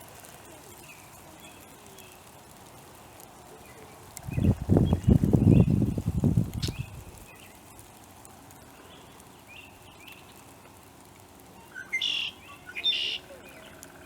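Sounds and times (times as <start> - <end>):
small birds chirping: 0.2 - 14.0
loud bird calls: 11.7 - 14.0.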